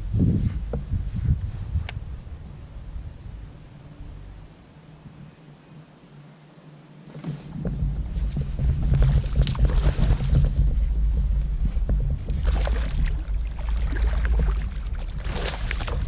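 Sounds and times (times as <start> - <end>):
wind on microphone: 0.0 - 5.8, 7.1 - 16.0
water splashing: 7.2 - 16.0.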